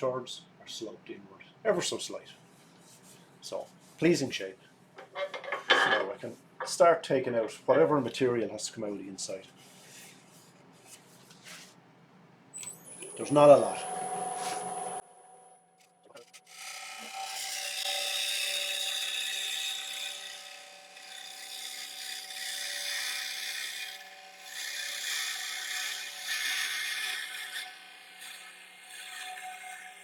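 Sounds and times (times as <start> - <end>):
lathe tool cutting wood hiss: 12.8 - 15.0.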